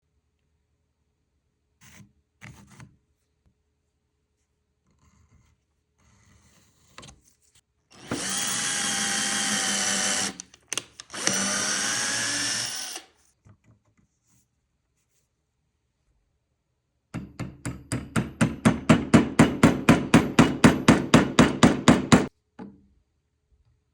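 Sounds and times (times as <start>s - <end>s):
power drill running: 7.9s - 13.1s.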